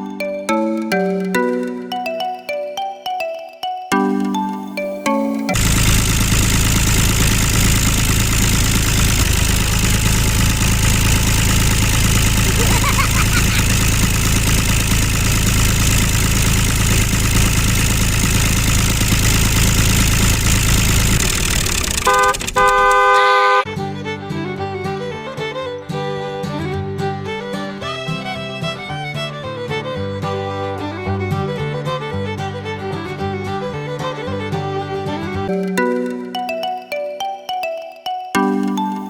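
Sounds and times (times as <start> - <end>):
small engine running: 5.5 - 23.2.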